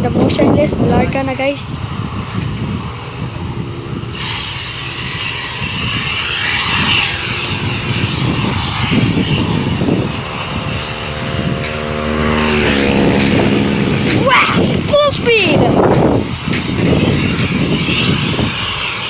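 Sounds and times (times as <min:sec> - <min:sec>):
airplane engines roaring: 0:00.0 - 0:19.0
low engine hum: 0:00.0 - 0:19.0.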